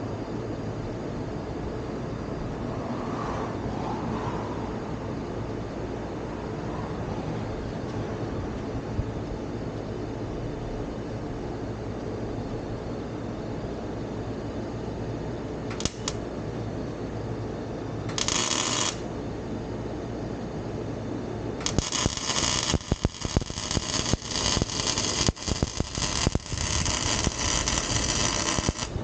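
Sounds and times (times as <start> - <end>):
welding arc crackling: 15.7 - 16.2, 18.1 - 19.1, 21.6 - 29.0.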